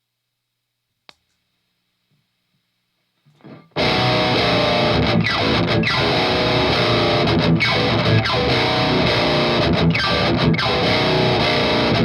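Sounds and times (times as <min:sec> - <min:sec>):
distorted electric guitar: 0:03.3 - 0:12.0.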